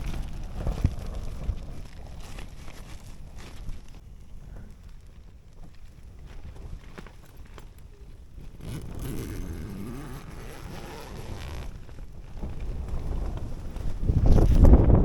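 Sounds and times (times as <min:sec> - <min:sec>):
wind buffeting: 0:07.9 - 0:15.0.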